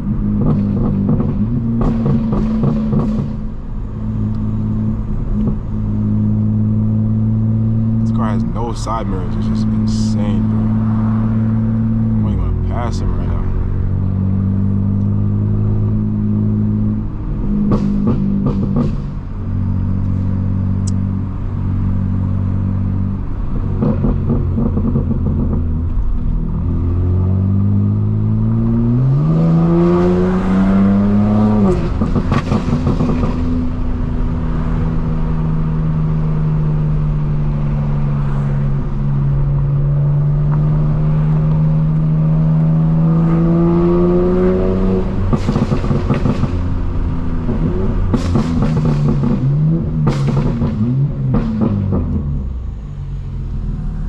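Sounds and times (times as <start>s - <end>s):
exhaust crackles: 0.0s - 15.2s
car engine accelerating: 0.0s - 54.0s.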